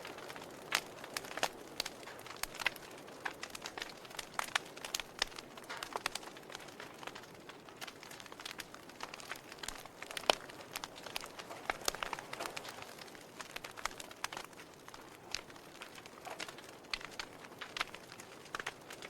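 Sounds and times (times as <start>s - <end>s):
burning logs crackling and popping: 0.0s - 19.0s.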